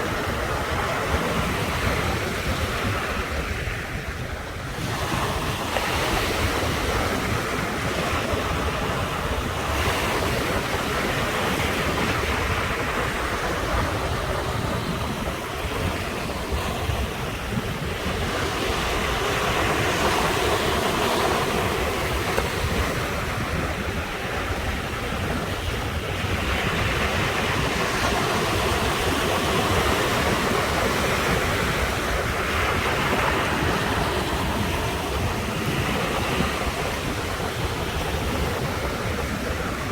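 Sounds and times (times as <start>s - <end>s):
ocean surf breaking: 0.0s - 39.9s.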